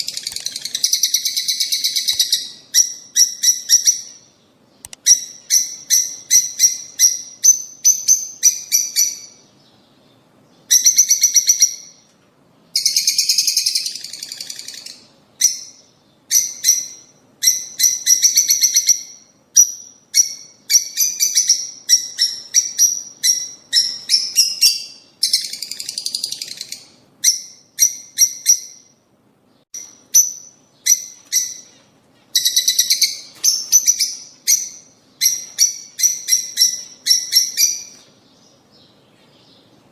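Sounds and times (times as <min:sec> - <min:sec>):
lovebirds chirping: 0:00.0 - 0:12.1, 0:12.7 - 0:39.9.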